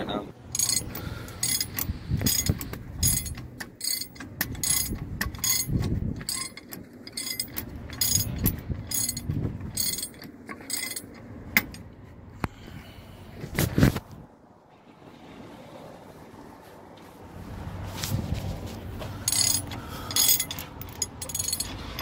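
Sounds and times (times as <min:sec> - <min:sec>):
ratchet wrench clicking: 0:00.5 - 0:11.8, 0:19.2 - 0:22.0.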